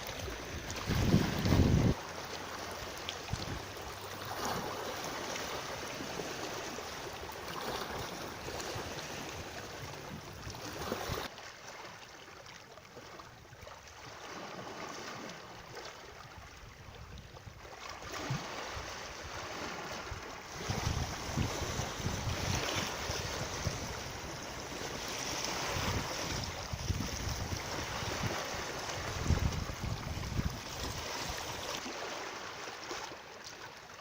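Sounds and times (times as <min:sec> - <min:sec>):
water flowing: 0:00.0 - 0:11.3
wind buffeting microphone: 0:00.2 - 0:02.0, 0:20.0 - 0:31.4.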